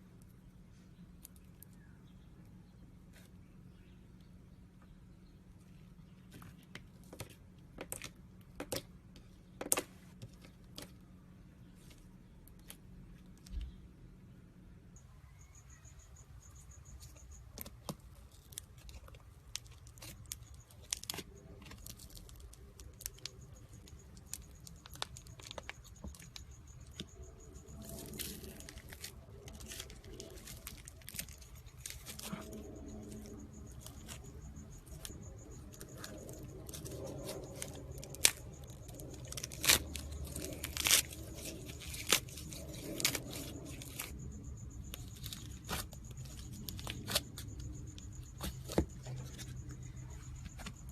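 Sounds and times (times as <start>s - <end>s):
tearing and crinkling: 17.5s - 44.2s, 44.9s - 50.9s.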